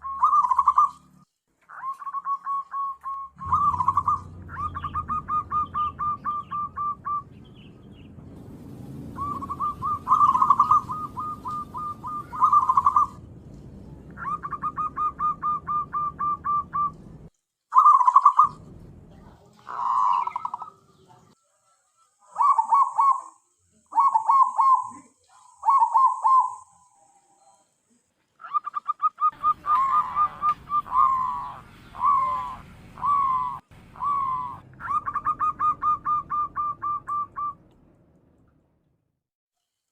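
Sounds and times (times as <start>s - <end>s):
dove cooing: 0.0s - 1.1s, 1.7s - 7.4s, 9.2s - 13.2s, 14.1s - 17.0s, 17.7s - 18.6s, 19.6s - 21.1s, 22.2s - 26.8s, 28.4s - 37.6s.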